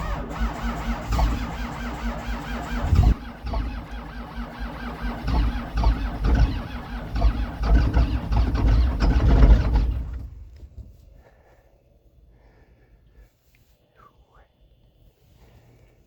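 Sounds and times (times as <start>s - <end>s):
diesel tractor engine running rough: 0.0s - 10.7s.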